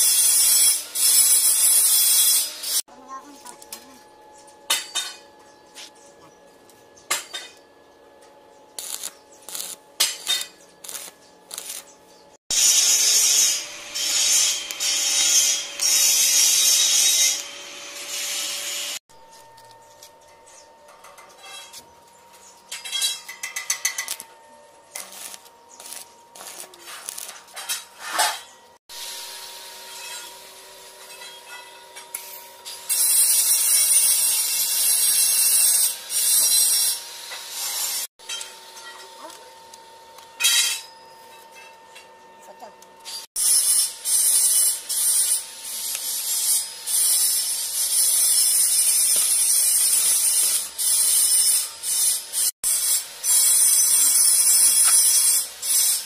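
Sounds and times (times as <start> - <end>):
welding arc crackling hiss: 0.0 - 2.8, 8.8 - 19.0, 23.7 - 24.3, 24.9 - 27.9, 32.1 - 38.1, 43.1 - 56.0.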